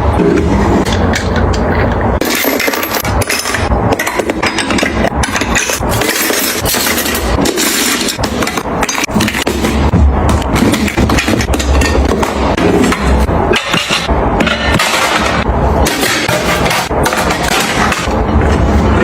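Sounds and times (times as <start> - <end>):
kitchen items knocking and clinking: 0.0 - 19.0
low rumble: 8.2 - 15.9.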